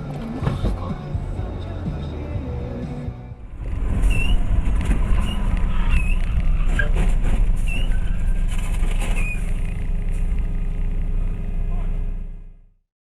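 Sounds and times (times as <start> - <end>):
vehicle engine and road rumble: 0.0 - 12.8.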